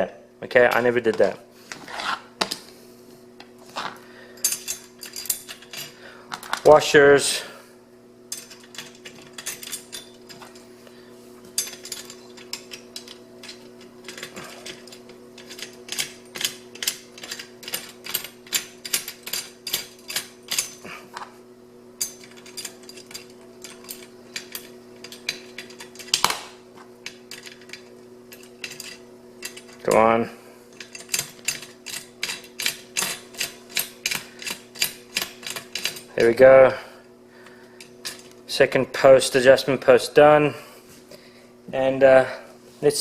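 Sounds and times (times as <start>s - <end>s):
steady low hum: 0.0s - 43.0s
small metal hardware clicking: 11.6s - 20.8s, 30.8s - 36.0s.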